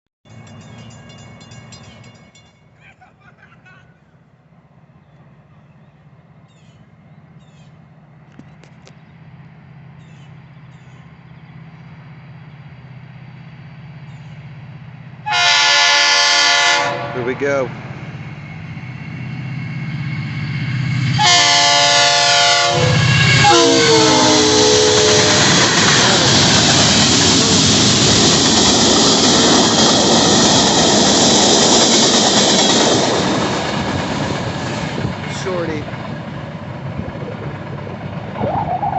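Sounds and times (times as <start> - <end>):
birds chirping: 0.3 - 14.6
diesel locomotive engine drone: 0.3 - 38.9
freight train rolling past: 0.3 - 38.9.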